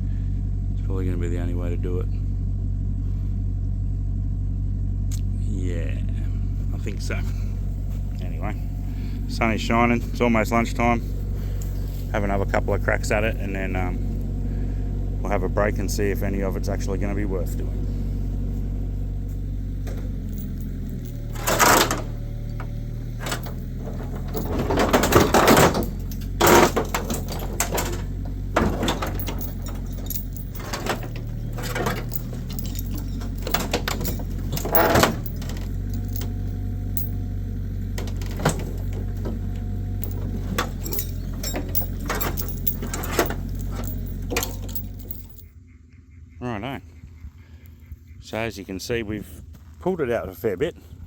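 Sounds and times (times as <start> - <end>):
excavator engine running: 0.0 - 45.7
car body panels creaking and banging: 19.8 - 36.5, 38.0 - 45.2.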